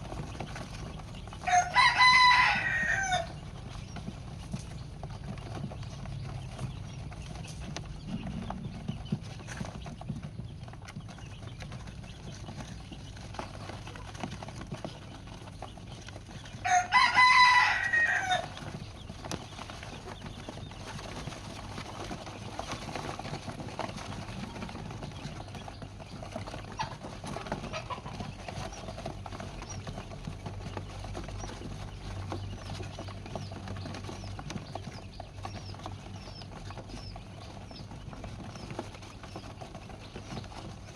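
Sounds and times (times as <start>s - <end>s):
rooster crowing: 1.4s - 3.4s, 16.6s - 18.8s.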